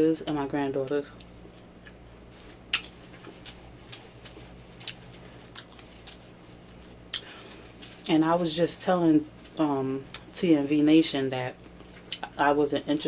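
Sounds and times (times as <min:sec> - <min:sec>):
faint electrical hum: 0:00.0 - 0:13.0
person chewing food: 0:01.2 - 0:06.3.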